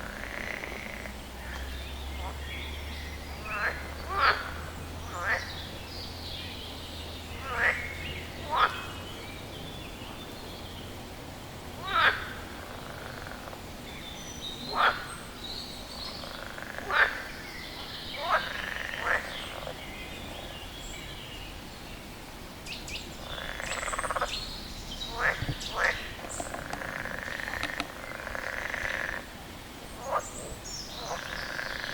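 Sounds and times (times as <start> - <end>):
frog calling: 0.0 - 5.7, 7.3 - 9.2, 11.8 - 13.7, 14.6 - 20.5, 22.6 - 29.4, 30.0 - 31.9.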